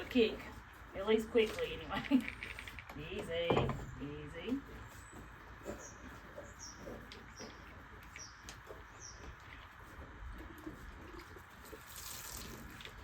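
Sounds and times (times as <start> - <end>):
small birds chirping: 0.9 - 11.3.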